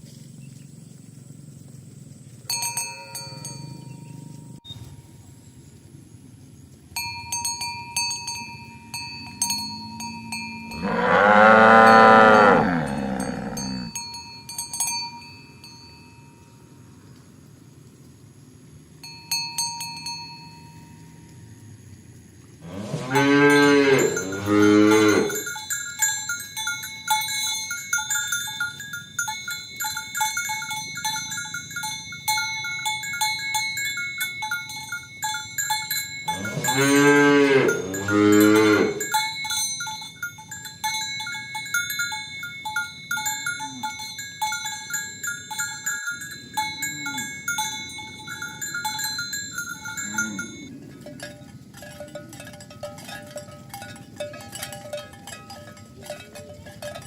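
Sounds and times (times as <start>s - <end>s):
cowbells clinking: 0.0s - 4.9s, 6.9s - 16.8s, 19.0s - 21.4s, 22.6s - 57.0s
cattle mooing: 10.7s - 13.9s, 22.6s - 25.4s, 36.3s - 39.0s, 50.1s - 50.7s.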